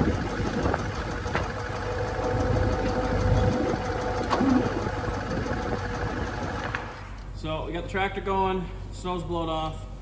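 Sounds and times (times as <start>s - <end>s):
tractor engine running: 0.0s - 7.3s.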